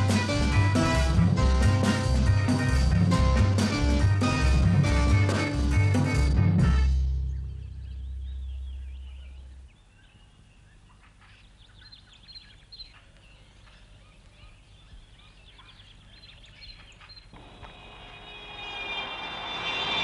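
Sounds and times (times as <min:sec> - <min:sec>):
birds chirping and warbling: 0:07.2 - 0:20.0.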